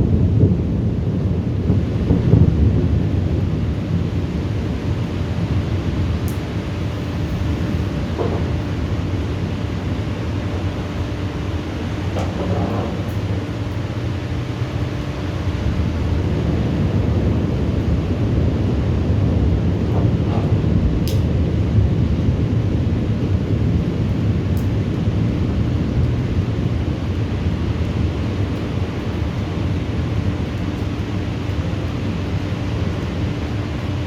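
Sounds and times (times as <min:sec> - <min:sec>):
thunderstorm rumble: 0:00.0 - 0:34.0.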